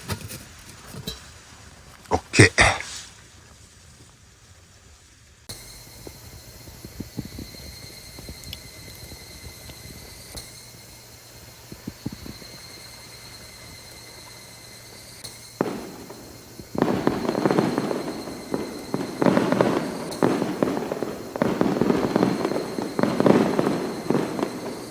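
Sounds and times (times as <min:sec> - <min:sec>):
faint steady high tone: 0:05.5 - 0:24.9.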